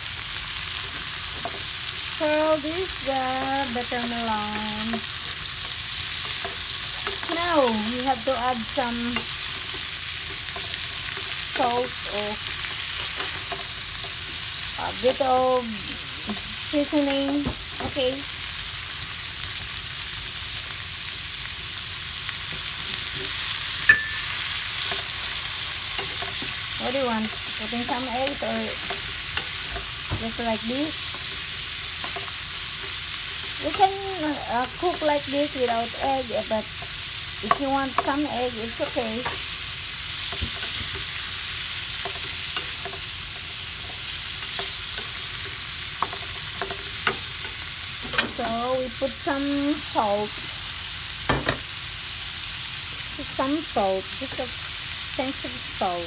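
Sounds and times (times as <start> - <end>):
vegetables and meat sizzling: 0.0 - 56.0
utensil tapping pan: 23.2 - 36.0, 37.4 - 39.5
sharp clink: 23.9 - 24.4.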